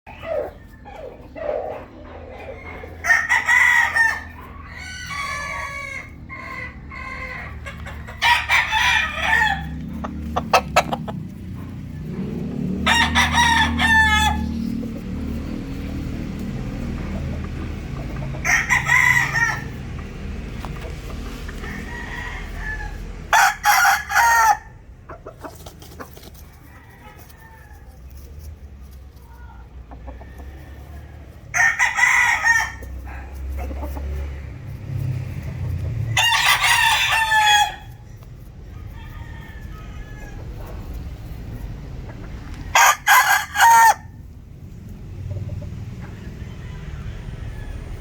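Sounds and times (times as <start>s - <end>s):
roosters crowing: 0.1s - 48.0s
steady low rumble: 3.8s - 23.7s.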